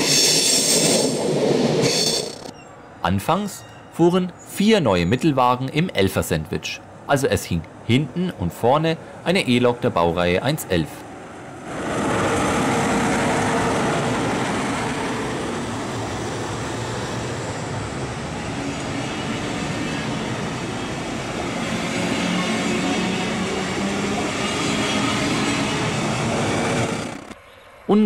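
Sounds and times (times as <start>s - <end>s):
train wheels rolling on rails: 0.0s - 2.6s, 10.8s - 27.5s.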